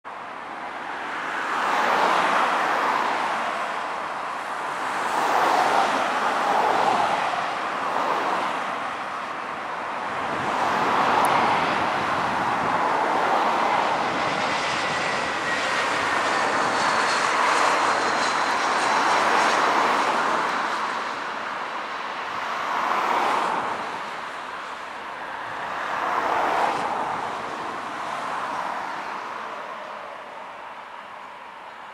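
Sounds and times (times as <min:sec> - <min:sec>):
jet engine rushing noise: 0:04.6 - 0:22.1.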